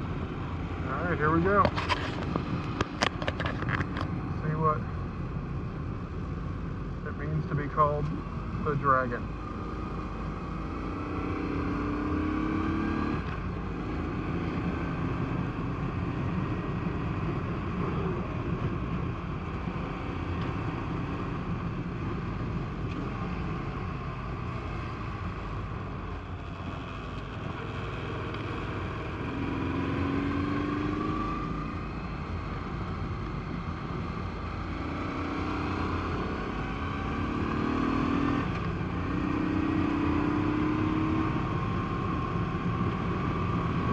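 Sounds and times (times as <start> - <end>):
motorcycle engine accelerating: 9.4 - 43.9.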